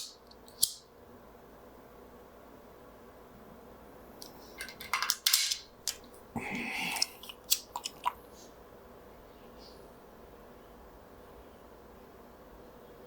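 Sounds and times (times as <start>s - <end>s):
scraping of wood and metal parts: 4.5s - 5.6s.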